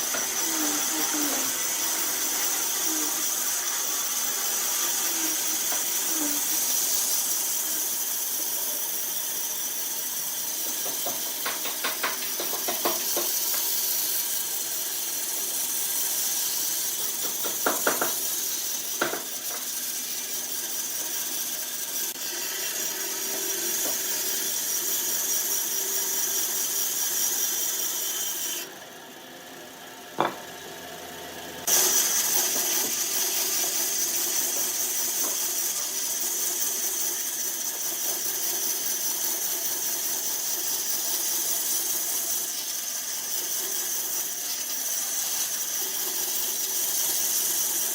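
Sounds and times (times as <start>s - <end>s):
power tool whining: 0.0s - 28.8s, 30.2s - 47.9s.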